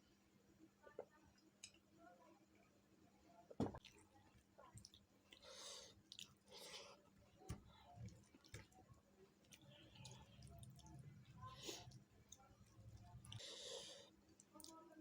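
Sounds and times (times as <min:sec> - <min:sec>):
wet chewing: 0:04.7 - 0:14.8.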